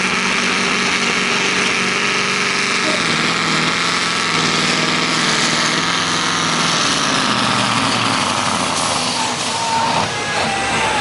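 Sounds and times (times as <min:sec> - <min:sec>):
diesel truck engine under load: 0:00.0 - 0:11.0.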